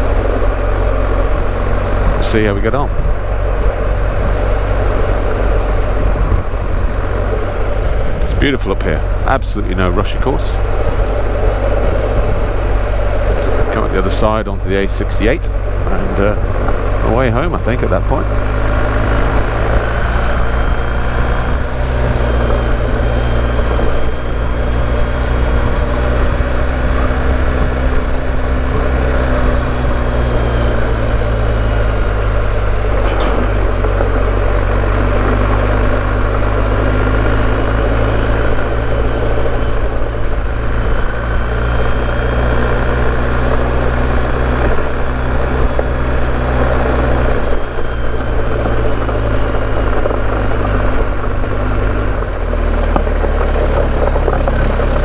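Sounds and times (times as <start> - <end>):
motorcycle engine cruising: 0.0 - 55.0
tyres on gravel: 0.0 - 55.0.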